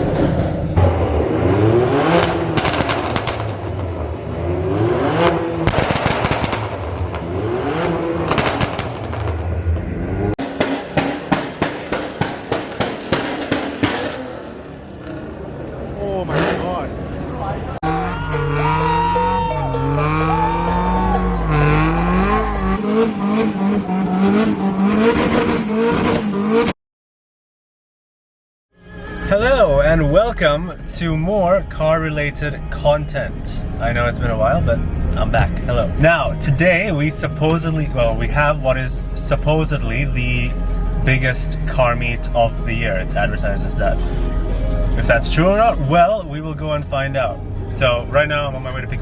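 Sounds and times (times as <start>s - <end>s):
car engine revving: 0.0s - 26.8s
exhaust pops and bangs: 2.1s - 4.0s, 5.2s - 9.5s, 10.4s - 14.5s.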